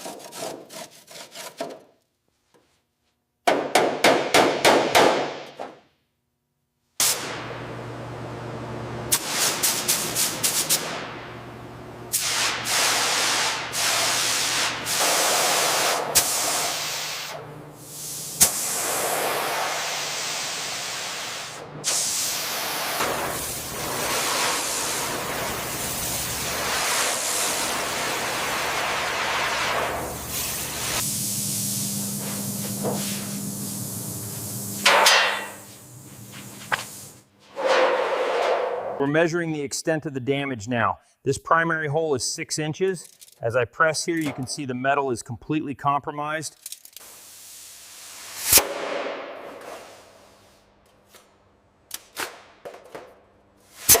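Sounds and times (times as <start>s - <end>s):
hissing spray bursts: 9.1s - 10.9s, 12.1s - 37.2s, 47.0s - 48.7s, 53.6s - 54.0s
steady hiss: 47.0s - 48.6s.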